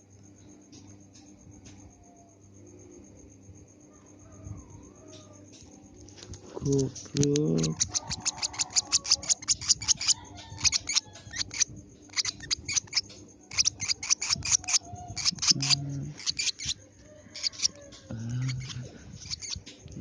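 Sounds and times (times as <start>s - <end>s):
lovebird chirping: 7.3s - 19.6s
low voice humming: 15.3s - 16.2s, 18.1s - 19.2s.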